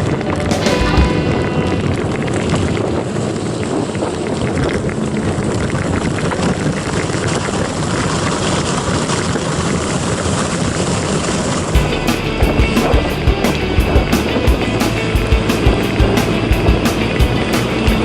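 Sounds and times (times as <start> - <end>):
wind rushing over microphone: 0.0 - 11.8.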